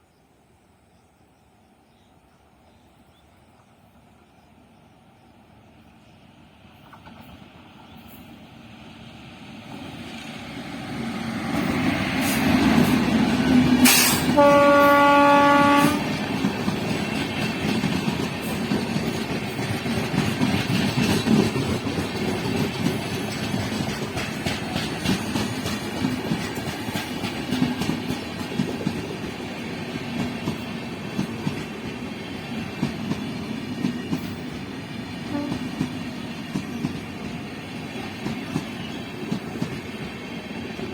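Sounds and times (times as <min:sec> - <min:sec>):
train wheels clattering on rails: 0:06.8 - 0:08.4, 0:09.7 - 0:40.9
train horn: 0:13.8 - 0:16.3, 0:35.2 - 0:35.9.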